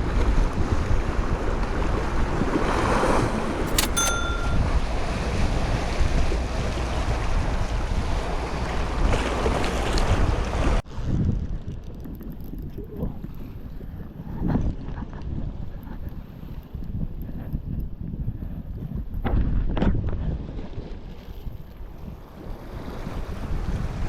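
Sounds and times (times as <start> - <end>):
sharp clicks: 3.7 - 4.6
brief thin tone: 3.7 - 4.7
wind buffeting microphone: 5.7 - 24.0.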